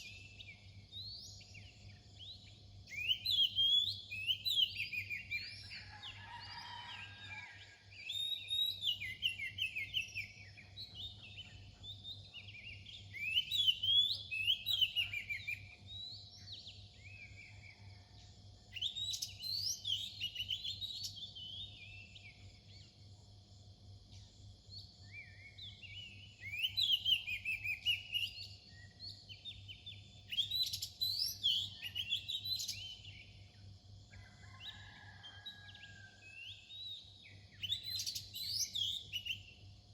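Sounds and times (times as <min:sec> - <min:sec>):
magpie-robin whistled song: 0:00.0 - 0:05.8, 0:08.0 - 0:17.7, 0:18.7 - 0:22.3, 0:25.1 - 0:33.3, 0:36.5 - 0:39.7.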